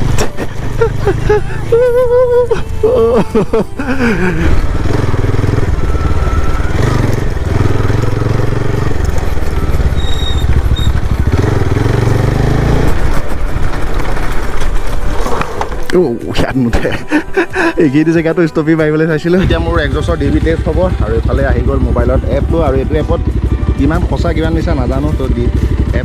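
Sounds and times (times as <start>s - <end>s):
motorcycle exhaust revving: 4.1s - 15.2s, 19.4s - 26.0s.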